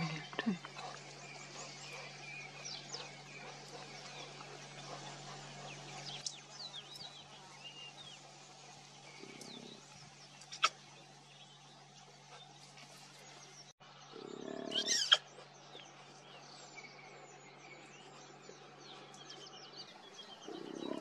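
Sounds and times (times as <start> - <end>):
steady low hum: 0.0 - 14.2
bird chirps: 0.0 - 21.0.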